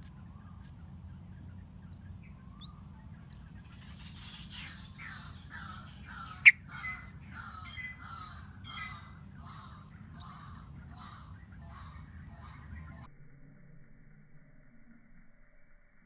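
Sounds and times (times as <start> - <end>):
bird giving harsh falling calls: 1.9 - 12.6.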